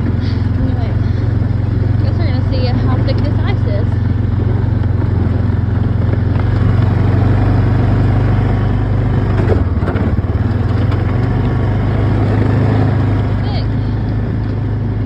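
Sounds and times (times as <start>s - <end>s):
farm vehicle engine running: 0.0s - 15.0s.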